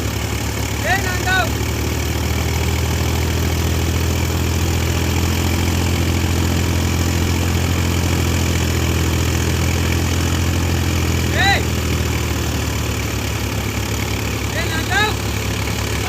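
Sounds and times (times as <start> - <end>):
diesel engine running at low revs: 0.0 - 16.0.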